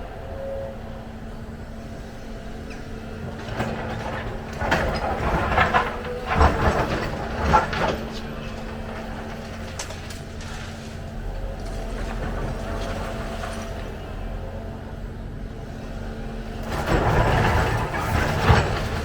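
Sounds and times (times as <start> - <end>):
diesel engine running: 0.0 - 19.0
loud rough irregular noises: 2.7 - 13.9, 16.6 - 19.0.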